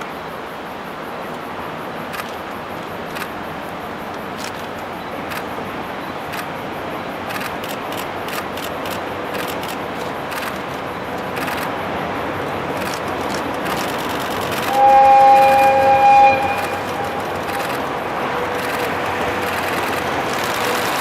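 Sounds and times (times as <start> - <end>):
diesel locomotive rumble: 1.5 - 21.0
sharp clicks: 7.2 - 11.8, 12.7 - 14.8, 16.4 - 21.0.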